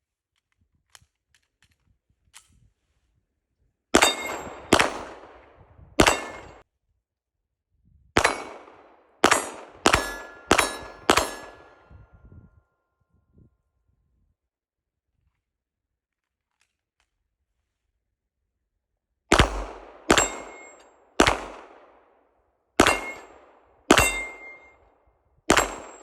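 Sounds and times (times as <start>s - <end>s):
steel targets clanging: 4.0s - 4.6s, 6.0s - 6.6s, 9.9s - 11.7s, 22.8s - 23.3s, 23.9s - 24.7s
pistol shots: 4.0s - 6.6s, 8.2s - 11.9s, 19.3s - 22.0s, 22.8s - 24.7s, 25.5s - 26.0s.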